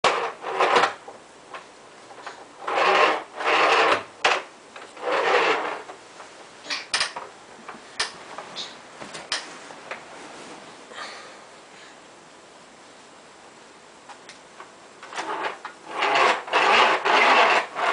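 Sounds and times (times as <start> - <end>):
rubbing or scraping: 0.0 - 6.9, 8.2 - 10.8, 15.0 - 17.9
sharp clicks and knocks: 6.7 - 8.2, 9.0 - 10.0.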